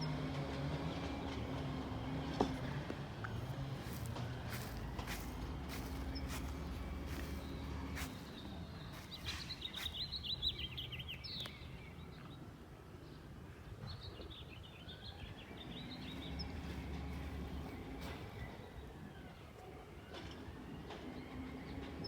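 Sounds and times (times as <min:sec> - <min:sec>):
low engine rumble: 0:00.0 - 0:11.6, 0:15.4 - 0:19.1
songbird chirping: 0:02.4 - 0:12.4, 0:14.3 - 0:19.0.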